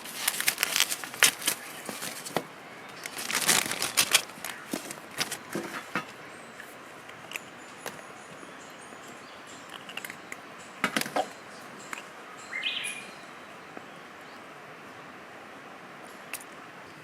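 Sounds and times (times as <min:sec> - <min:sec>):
steady outdoor hiss: 0:00.0 - 0:17.0
bird call: 0:07.6 - 0:14.1.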